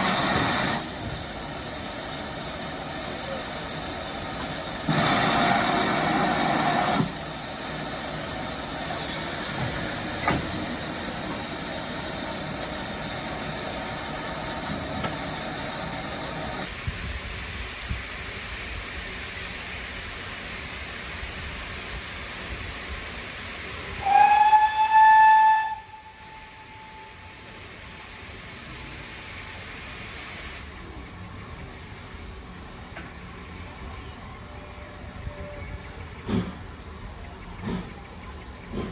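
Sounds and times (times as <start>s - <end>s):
steam hiss burst: 0.0s - 31.9s
steam locomotive whistle: 24.0s - 27.7s.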